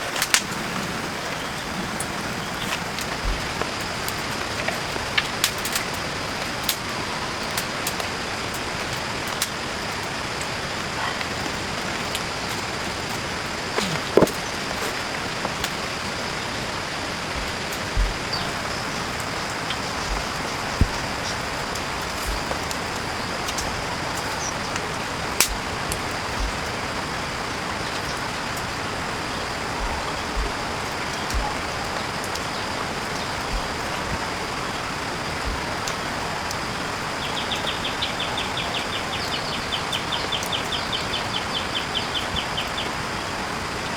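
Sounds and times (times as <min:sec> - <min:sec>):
steady rain falling: 0:00.0 - 0:43.9
water drips and thuds: 0:02.6 - 0:05.6, 0:13.8 - 0:34.4.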